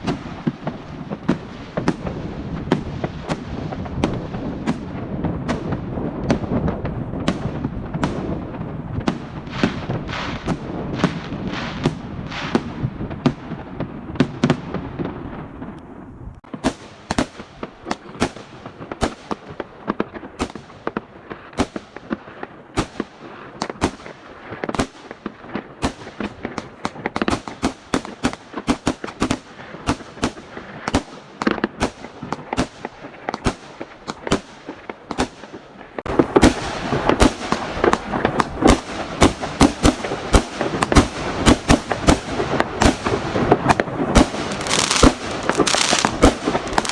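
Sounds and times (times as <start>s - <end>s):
fireworks bangs and crackling pops: 0.0s - 46.9s.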